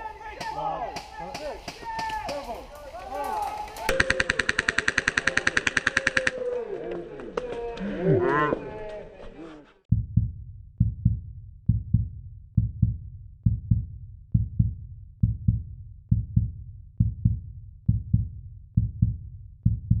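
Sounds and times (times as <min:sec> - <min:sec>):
heartbeat thumping: 0:09.9 - 0:20.0.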